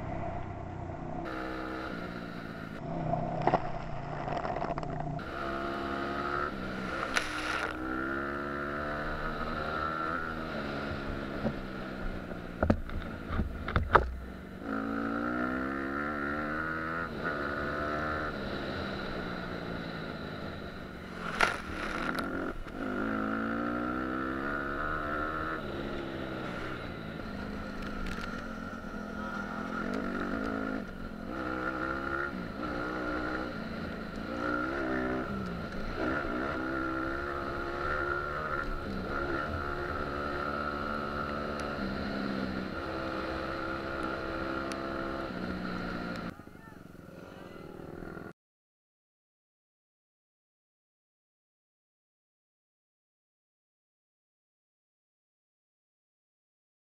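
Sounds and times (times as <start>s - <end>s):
dirt bike engine revving: 1.2s - 11.5s, 14.6s - 46.3s.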